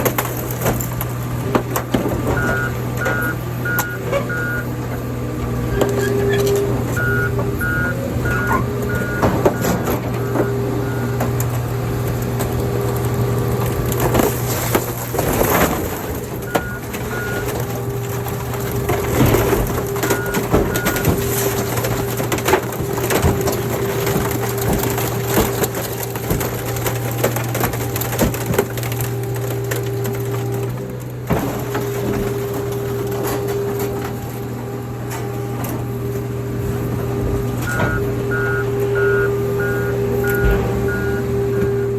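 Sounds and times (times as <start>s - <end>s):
car bodies creaking and crunching: 0.0s - 41.9s
short beeps: 2.4s - 4.6s, 7.0s - 11.2s, 37.7s - 41.9s
hydraulic machine drone: 34.2s - 41.9s.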